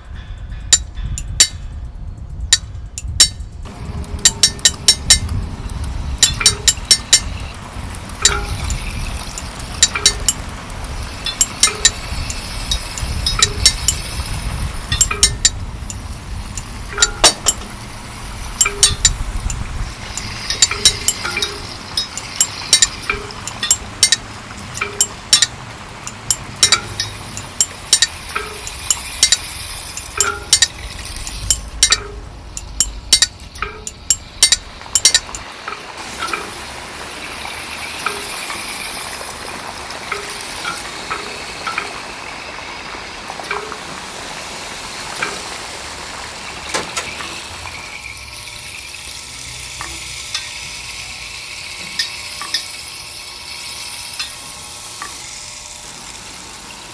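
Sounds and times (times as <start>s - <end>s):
sharp clinks and taps: 0.7s - 1.8s, 2.4s - 5.4s, 6.2s - 7.5s, 8.2s - 10.5s, 11.2s - 14.3s, 14.9s - 17.9s, 18.6s - 36.6s.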